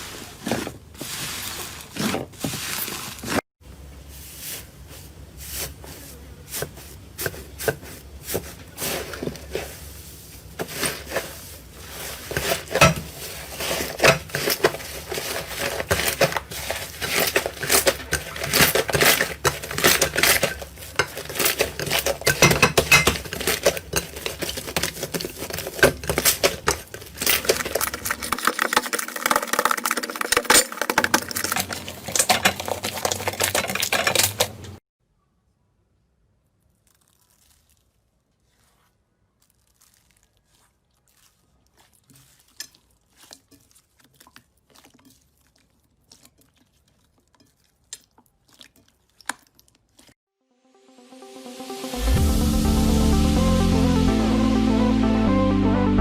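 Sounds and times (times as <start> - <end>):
slime crackling and popping: 36.6 - 45.8.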